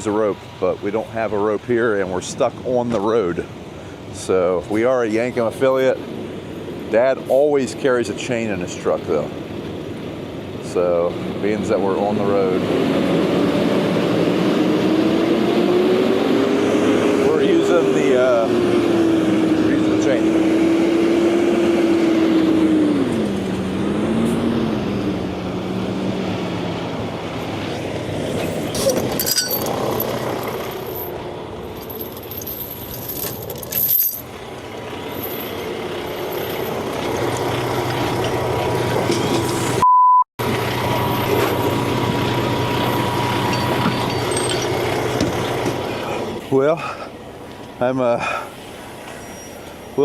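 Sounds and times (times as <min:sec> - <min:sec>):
truck engines under load: 0:00.0 - 0:39.8, 0:40.4 - 0:50.0
metallic clinks: 0:28.8 - 0:31.1, 0:31.7 - 0:34.2, 0:43.5 - 0:44.8.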